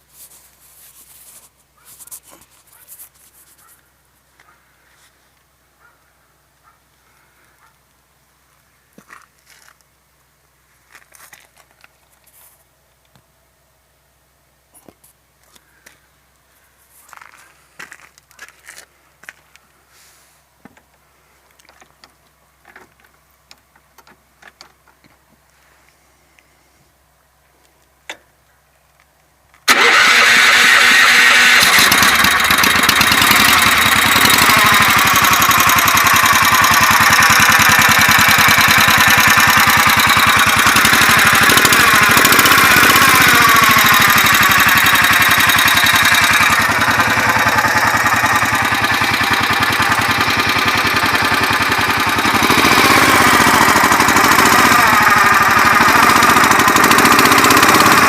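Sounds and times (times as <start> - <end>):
petrol engine running: 29.7 - 58.0.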